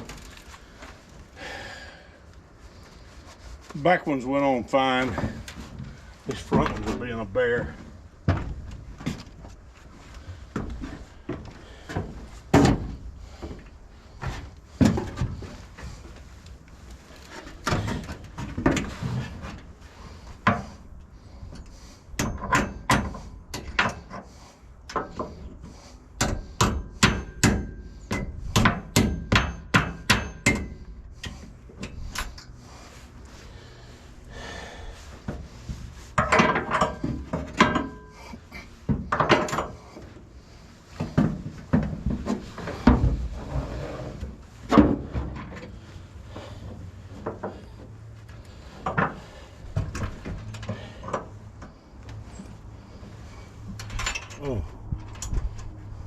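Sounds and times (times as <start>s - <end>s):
metal knocks and strikes: 26.2s - 30.8s.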